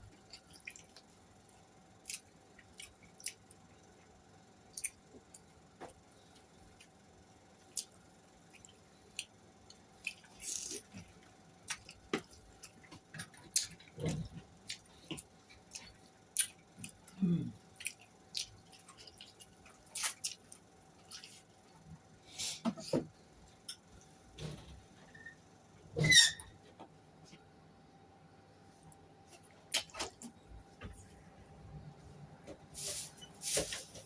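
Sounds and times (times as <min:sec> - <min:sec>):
person chewing with mouth smacks: 0:00.1 - 0:01.1, 0:04.7 - 0:06.0, 0:10.0 - 0:21.5.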